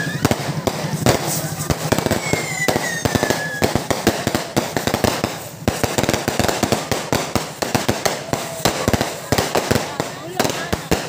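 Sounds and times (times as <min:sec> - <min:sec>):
falling firework whistle: 0:00.0 - 0:05.3
fireworks crackling bangs: 0:00.0 - 0:11.0.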